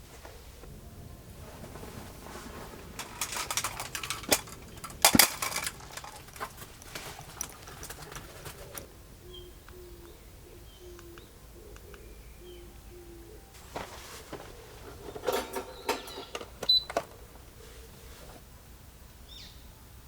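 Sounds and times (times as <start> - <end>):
sharp clicks and knocks: 3.0 - 8.9
dove cooing: 5.8 - 18.4
small bird chirping: 8.6 - 13.5, 19.2 - 19.7.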